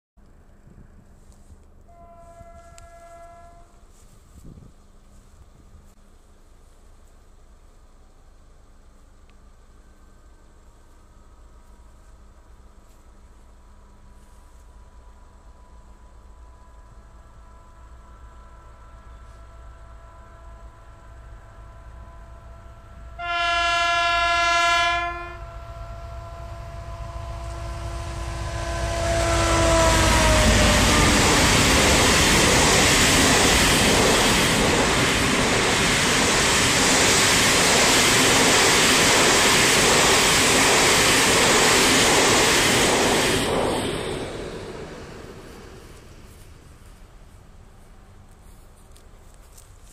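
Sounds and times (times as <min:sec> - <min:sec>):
locomotive horn blast: 0:01.9 - 0:04.0, 0:15.6 - 0:32.8
freight wagons rumbling past: 0:25.4 - 0:47.7.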